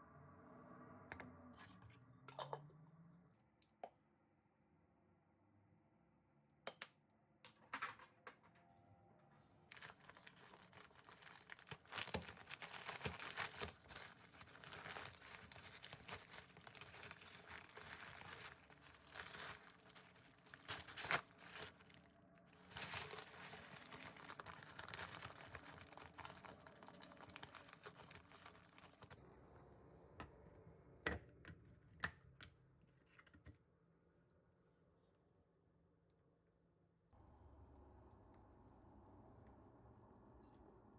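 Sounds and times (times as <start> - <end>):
packaging crinkling: 9.7 - 29.2.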